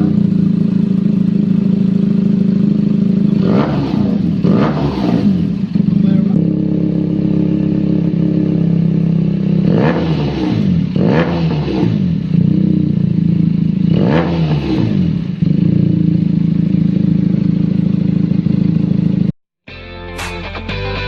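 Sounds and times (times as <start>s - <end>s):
motorcycle engine idling and revving: 0.0s - 19.4s.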